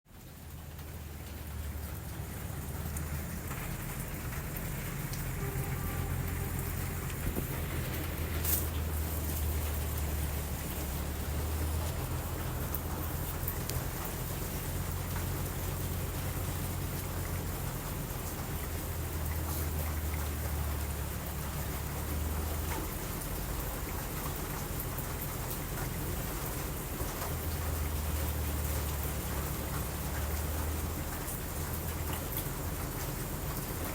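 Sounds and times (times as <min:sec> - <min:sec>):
steady rain falling: 0:00.1 - 0:33.9
sharp drip ticks: 0:00.2 - 0:33.9
low rumble: 0:01.1 - 0:17.4.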